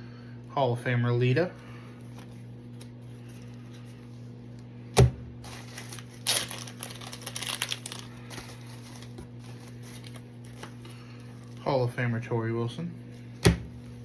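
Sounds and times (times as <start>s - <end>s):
steady low hum: 0.0s - 14.0s
plastic packaging crinkling: 5.4s - 11.8s.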